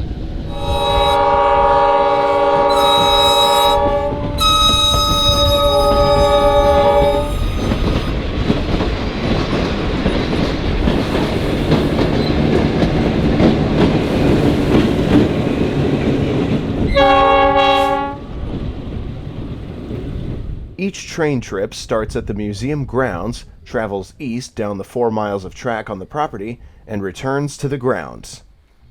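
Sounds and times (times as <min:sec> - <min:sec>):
train rumbling and clattering past: 0:00.0 - 0:23.6
locomotive air horn: 0:00.5 - 0:08.2, 0:16.9 - 0:18.3.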